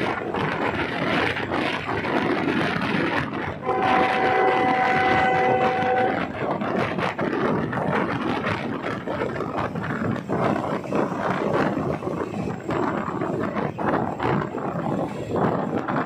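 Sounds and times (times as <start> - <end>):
train rushing and rattling: 0.0 - 16.0
railcar horn: 3.6 - 6.4.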